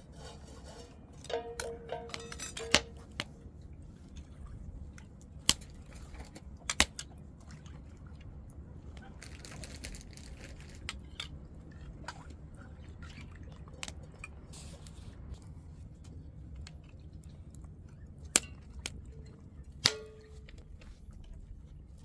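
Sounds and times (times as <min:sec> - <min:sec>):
low steady hum: 0:00.0 - 0:22.0
ringing clink: 0:01.3 - 0:03.2.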